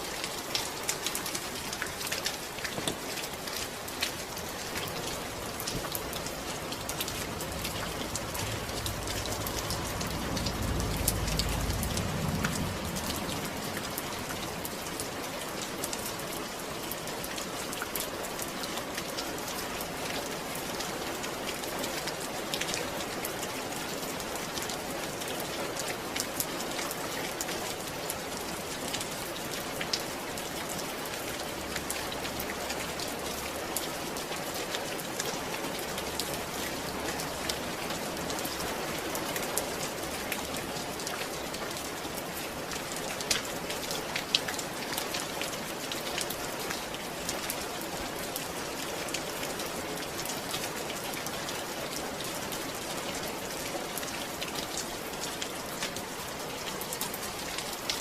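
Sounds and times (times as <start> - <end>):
steady rain falling: 0.0 - 58.0
low rumble: 7.3 - 14.6.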